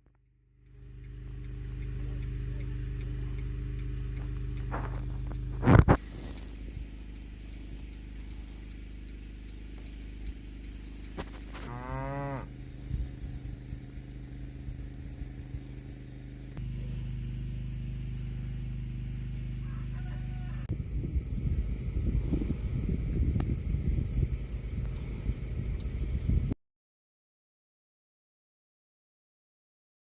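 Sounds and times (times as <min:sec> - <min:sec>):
low hum: 0:00.0 - 0:26.6
cow mooing: 0:11.5 - 0:12.6.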